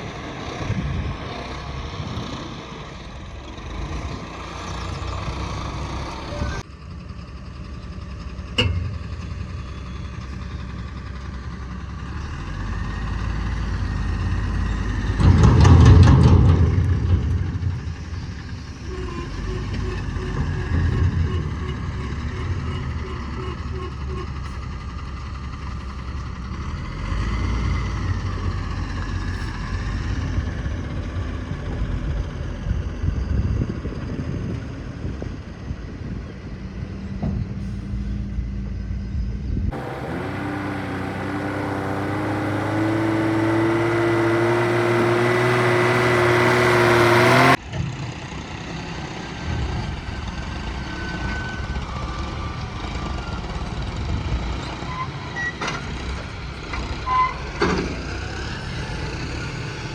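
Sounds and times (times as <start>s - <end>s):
heavy diesel machinery running: 0.0s - 33.5s, 39.7s - 59.9s
engine revving up: 39.7s - 47.6s.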